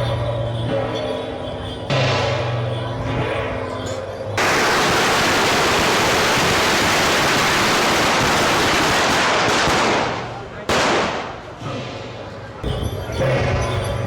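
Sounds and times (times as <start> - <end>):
firecrackers crackling: 4.4 - 12.5.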